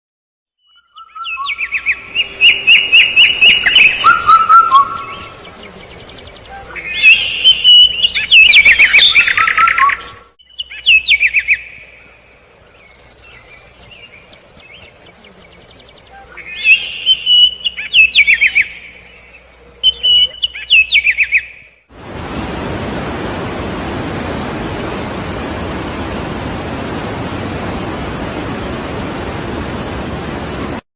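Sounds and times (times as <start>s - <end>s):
songbird trilling and whistling: 0.6s - 11.8s, 12.8s - 21.7s.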